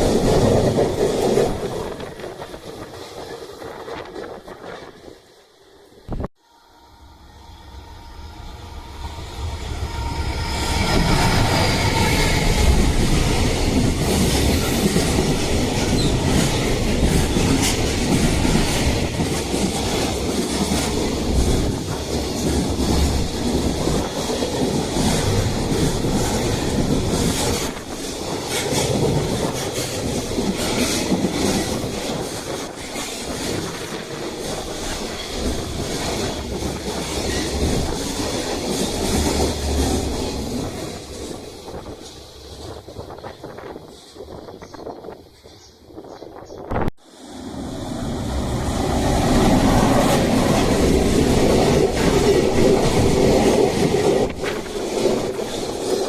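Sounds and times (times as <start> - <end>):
train rumble: 0.0 - 56.0
wheels clacking over rail joints: 48.0 - 56.0.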